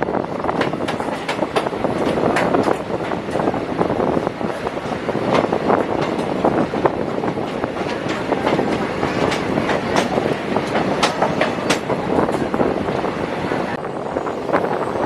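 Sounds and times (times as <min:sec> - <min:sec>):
train running rumble: 0:00.0 - 0:15.0
wheels clacking over rail joints: 0:05.3 - 0:12.6.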